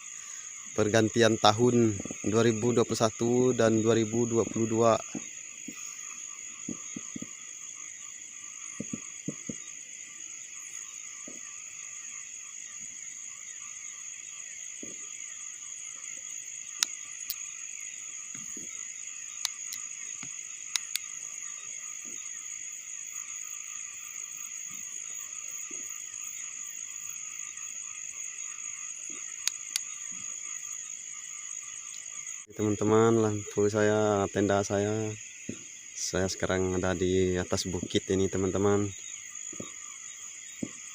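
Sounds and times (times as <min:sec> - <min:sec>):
crickets and frogs trilling: 0:00.0 - 0:40.9
sharp clicks: 0:19.4 - 0:21.1, 0:29.4 - 0:29.9.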